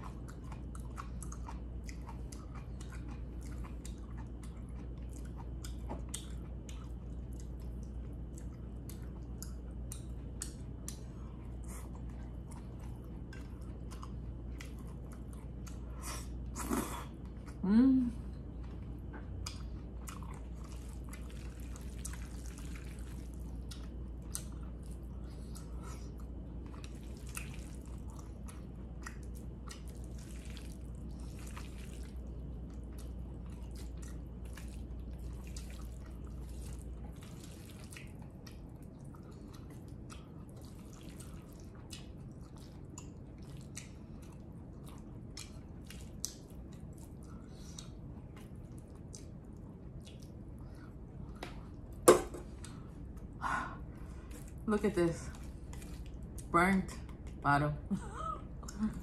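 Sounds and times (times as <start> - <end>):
wet chewing and mouth sounds: 0.0 - 17.6, 18.3 - 57.4
low steady hum: 0.0 - 59.0.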